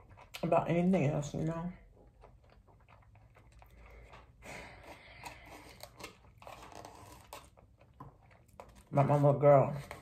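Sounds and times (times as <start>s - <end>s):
person chewing food: 1.8s - 8.8s.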